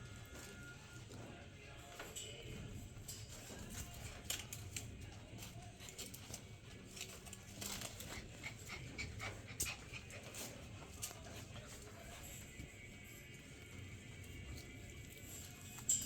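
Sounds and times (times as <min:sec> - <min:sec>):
puppies panting: 0:05.4 - 0:15.3.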